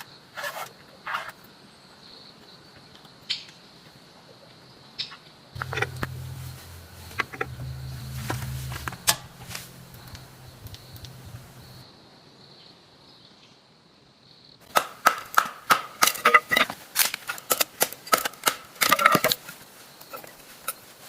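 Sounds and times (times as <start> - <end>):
sharp ringing knocks: 5.6 - 11.8.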